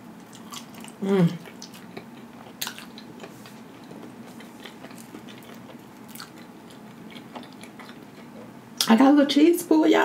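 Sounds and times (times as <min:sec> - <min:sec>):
person chewing soft food: 0:00.0 - 0:08.6.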